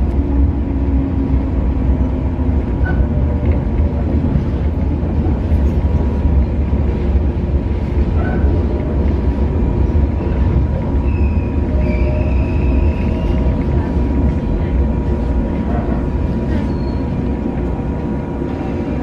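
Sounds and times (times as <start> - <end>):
train interior rumble: 0.0 - 19.0
high squeals from train wheels: 11.0 - 13.5, 16.5 - 17.2.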